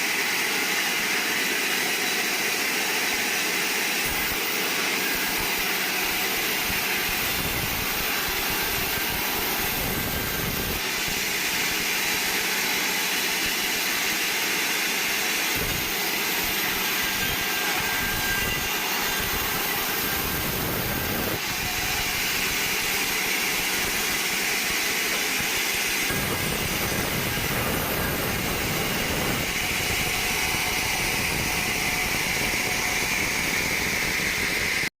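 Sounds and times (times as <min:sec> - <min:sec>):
band saw cutting log: 0:00.0 - 0:34.9.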